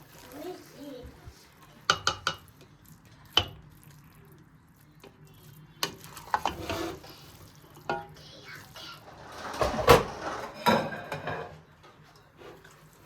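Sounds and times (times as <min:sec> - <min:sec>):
dishes and utensils clinking: 0:01.8 - 0:02.7, 0:05.8 - 0:07.2, 0:07.8 - 0:08.2, 0:09.0 - 0:12.8
scraping and rustling: 0:05.9 - 0:07.6, 0:08.8 - 0:13.0.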